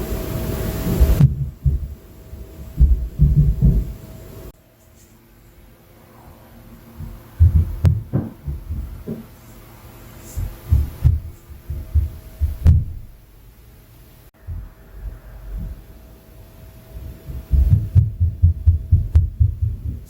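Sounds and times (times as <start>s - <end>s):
faint steady hum: 0.0s - 20.0s
dull thuds through ceiling: 0.8s - 4.1s, 7.0s - 9.4s, 10.3s - 13.2s, 14.4s - 15.9s, 16.9s - 20.0s.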